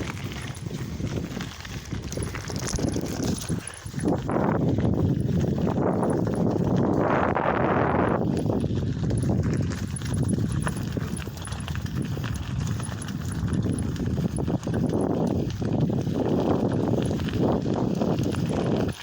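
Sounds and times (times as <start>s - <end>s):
bicycle rattling over rough ground: 0.0s - 19.0s.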